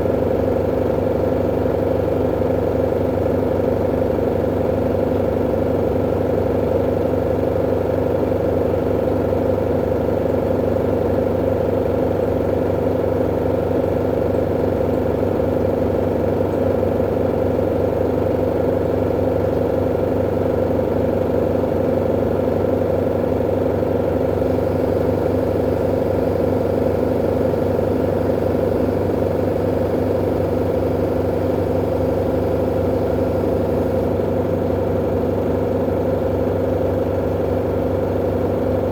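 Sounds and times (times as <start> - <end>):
washing machine humming: 19.0 - 38.9.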